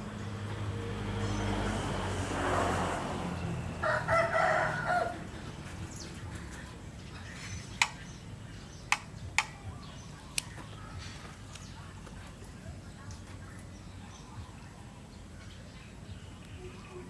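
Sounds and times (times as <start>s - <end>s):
rooster crowing: 3.6s - 5.4s
sharp clicks: 7.7s - 8.1s, 8.8s - 10.7s.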